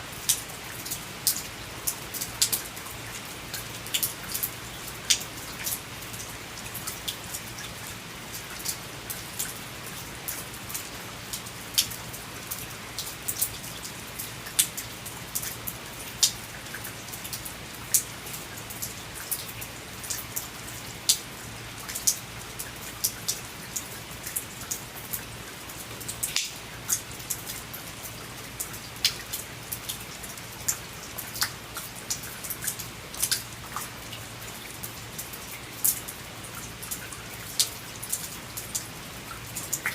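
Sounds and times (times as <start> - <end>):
steady hiss of rain: 0.0 - 39.9.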